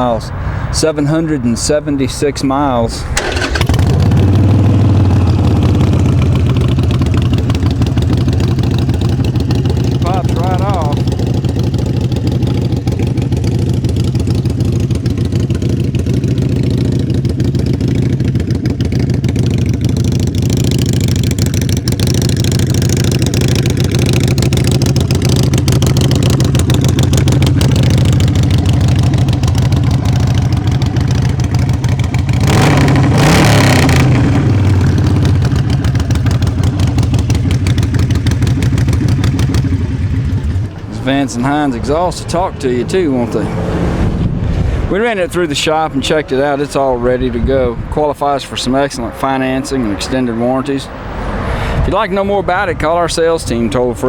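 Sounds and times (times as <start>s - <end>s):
motorcycle engine idling and revving: 3.1s - 54.0s.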